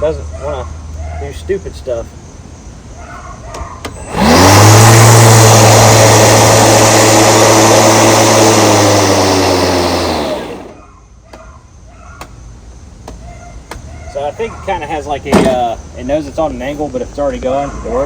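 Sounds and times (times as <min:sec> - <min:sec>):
electric mower motor whining: 0:03.8 - 0:10.8.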